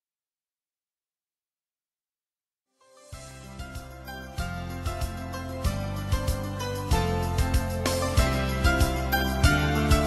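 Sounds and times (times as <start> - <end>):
background music with steady beat: 3.1 - 10.0.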